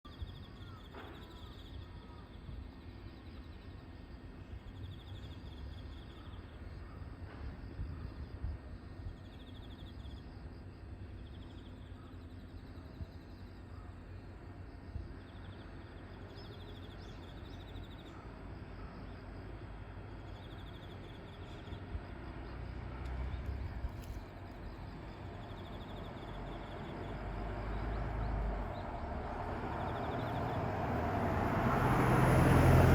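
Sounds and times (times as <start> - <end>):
insects chirping: 0.1 - 32.9
train rumbling: 18.2 - 32.9.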